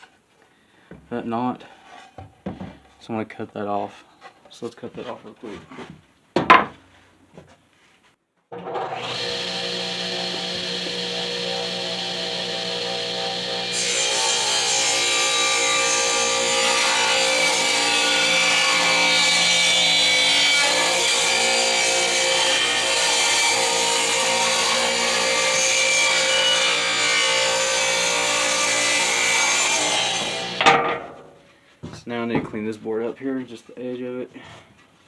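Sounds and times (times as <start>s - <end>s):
power saw cutting wood: 8.6s - 30.7s.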